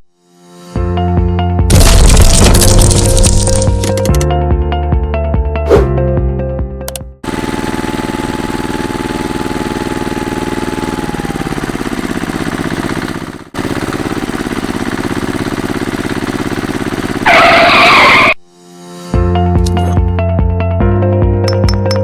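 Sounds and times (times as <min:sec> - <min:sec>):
small engine running: 0:07.2 - 0:18.4.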